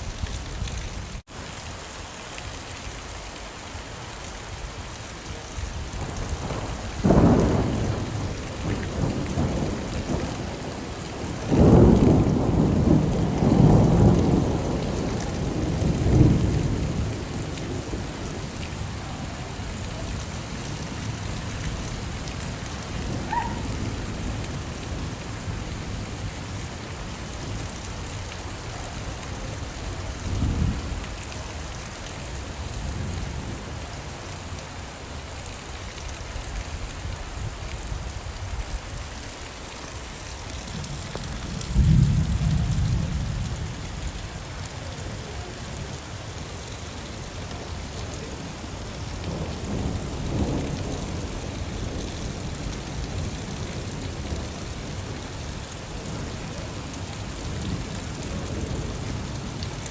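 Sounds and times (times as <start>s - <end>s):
steady rain falling: 0.0s - 59.9s
thunder clap and rumble: 5.8s - 26.6s, 29.2s - 31.4s, 40.6s - 44.2s, 49.2s - 55.2s.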